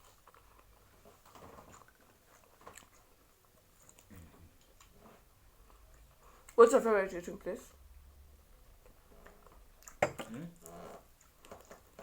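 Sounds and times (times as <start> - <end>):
chewing and biting: 1.7 - 5.0.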